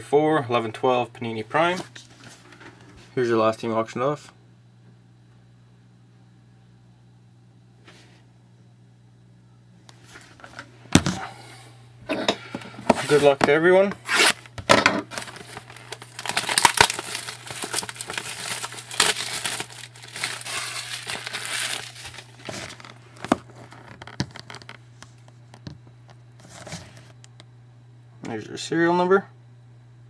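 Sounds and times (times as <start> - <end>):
plastic wrapping crinkling: 14.0 - 25.2.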